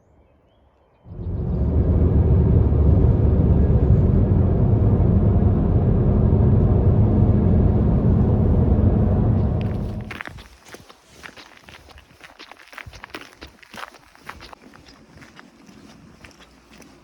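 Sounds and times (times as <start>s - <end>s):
engine rumbling: 1.1s - 10.8s.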